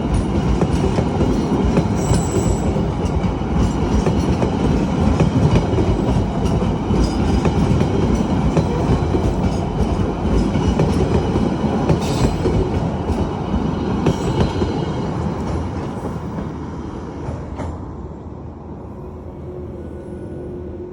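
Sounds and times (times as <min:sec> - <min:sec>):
train wheels clacking on rails: 0:00.0 - 0:17.9.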